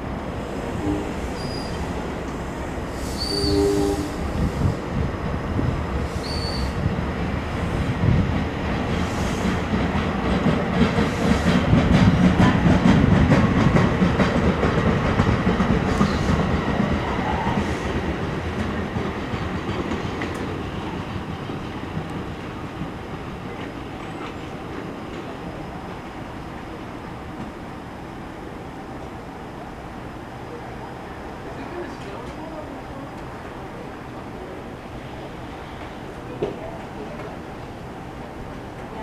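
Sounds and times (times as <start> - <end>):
passenger train rolling past: 0.0 - 39.0
train wheels clicking over rails: 4.2 - 26.3.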